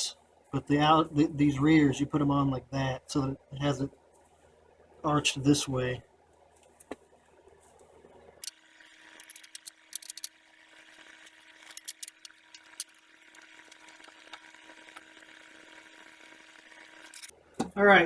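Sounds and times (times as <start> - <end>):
metallic clicks of bolts and washers: 9.2 - 10.3, 11.2 - 13.0, 17.1 - 17.3.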